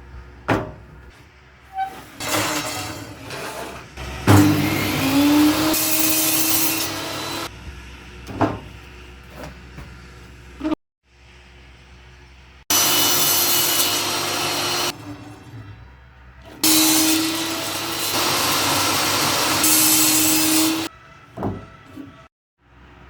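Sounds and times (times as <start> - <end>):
table saw cutting wood: 1.8 - 7.5, 12.7 - 15.3, 16.6 - 20.9.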